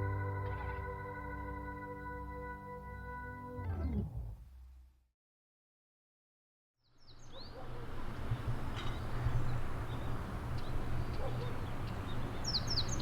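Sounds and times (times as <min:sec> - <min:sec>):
bird chirping: 0:09.0 - 0:13.0.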